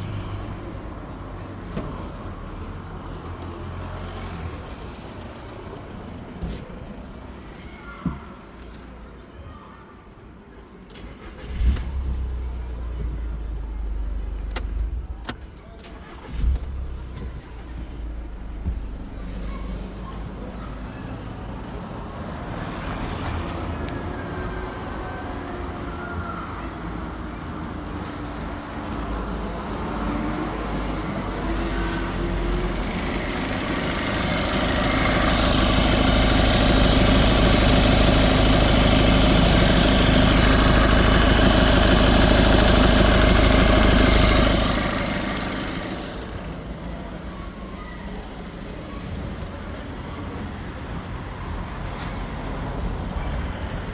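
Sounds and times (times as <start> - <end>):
diesel engine running: 16.0 - 53.9.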